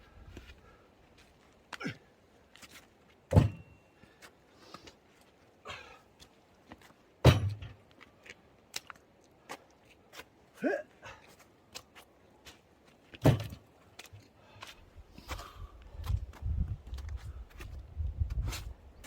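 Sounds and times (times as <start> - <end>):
heavy thuds of logs: 3.3 - 3.7, 7.2 - 7.8, 13.2 - 13.6
knocks and clatter of wood: 3.3 - 3.7, 7.2 - 7.8, 13.2 - 13.6.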